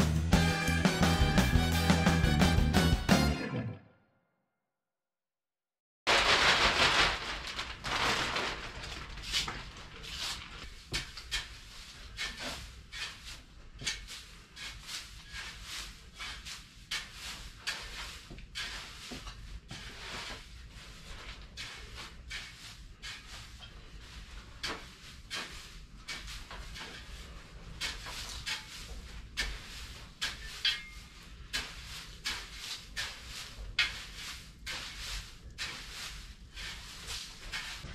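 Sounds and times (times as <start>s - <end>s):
short scraping strokes: 24.7s - 37.9s.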